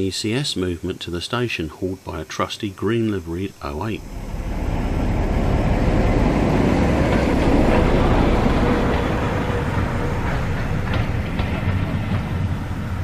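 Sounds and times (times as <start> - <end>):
diesel locomotive engine: 3.6 - 13.0
rail rumble: 3.6 - 13.0.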